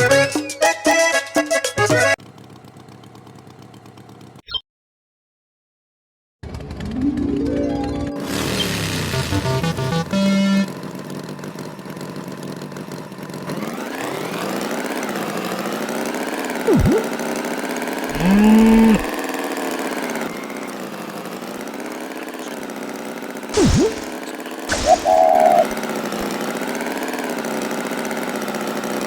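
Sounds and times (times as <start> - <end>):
cartoon tractor engine: 0.0 - 4.6, 6.4 - 29.0
swooping sound effect: 16.7 - 17.1, 23.6 - 25.8
bull mooing: 18.1 - 19.2.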